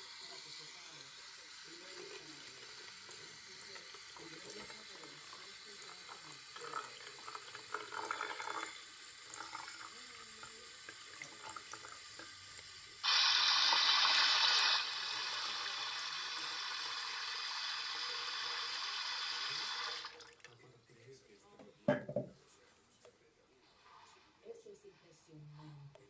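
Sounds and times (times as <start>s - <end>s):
water rushing into washing machine: 0.0s - 20.5s.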